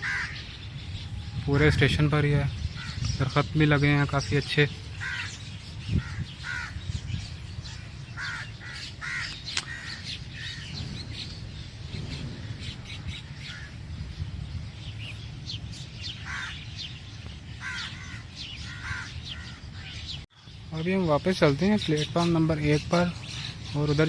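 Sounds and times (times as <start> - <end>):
crows cawing: 0.0 - 0.6, 2.7 - 3.1, 4.9 - 7.0, 7.6 - 10.8, 12.3 - 13.9, 16.1 - 16.9, 17.5 - 20.2
steady low rumble: 0.0 - 20.7.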